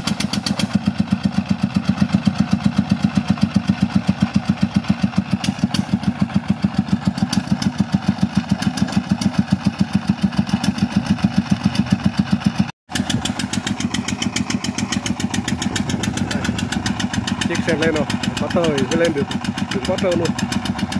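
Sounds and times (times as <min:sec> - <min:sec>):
diesel engine chugging: 0:00.0 - 0:20.9.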